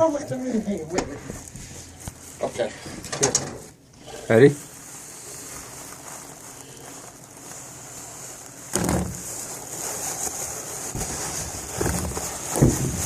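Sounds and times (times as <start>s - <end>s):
room noise hiss: 0.0s - 13.0s
sudden thump: 8.8s - 9.2s.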